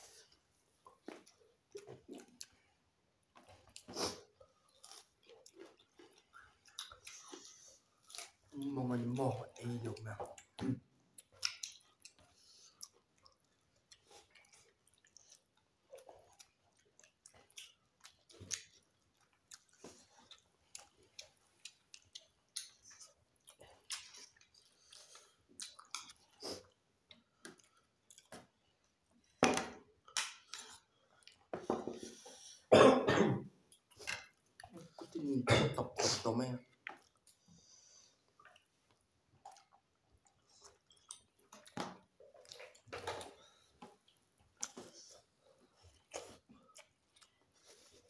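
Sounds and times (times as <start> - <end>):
wet chewing and lip smacks: 0.2 - 8.6, 9.9 - 29.4, 30.0 - 31.5, 36.8 - 48.0
person coughing: 32.7 - 33.5, 35.4 - 36.2.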